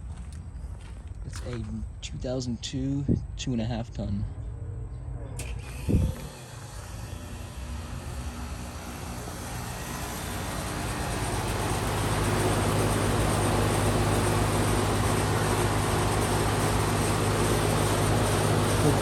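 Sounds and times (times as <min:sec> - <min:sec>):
air conditioner compressor hum: 0:05.4 - 0:19.0
condenser fan rush of air: 0:05.4 - 0:19.0.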